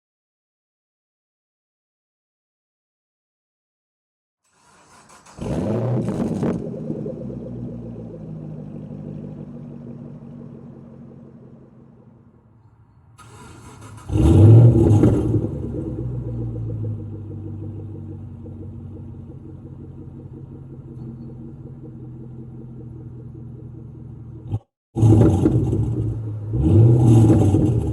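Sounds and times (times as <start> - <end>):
car engine cranking and starting: 4.5 - 27.9
car engine idling: 6.1 - 24.6.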